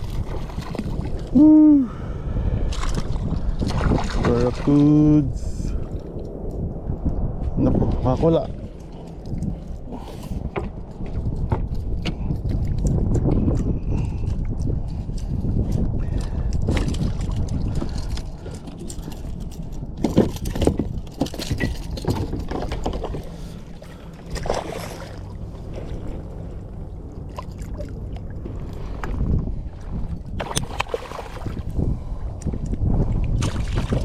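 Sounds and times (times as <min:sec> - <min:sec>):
water moving around kayak: 0:00.0 - 0:34.0
wind buffeting microphone: 0:00.0 - 0:34.0
sharp knocks and rattles: 0:17.8 - 0:23.3.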